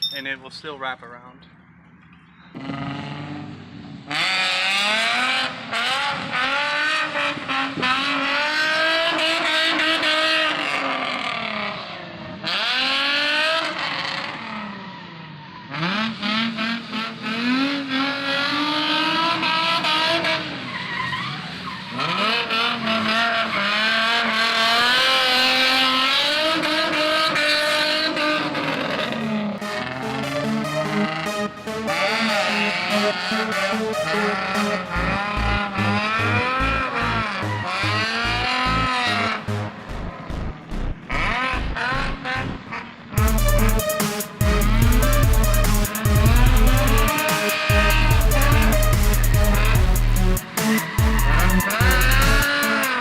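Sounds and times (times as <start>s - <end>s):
car engine revving hard: 2.6s - 14.8s, 15.7s - 53.0s.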